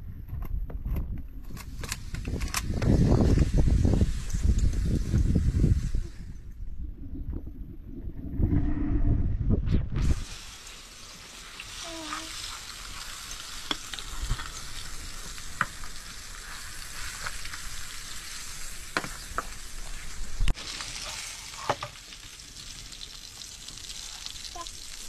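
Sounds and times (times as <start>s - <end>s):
food sizzling in frying pan: 10.0s - 25.0s.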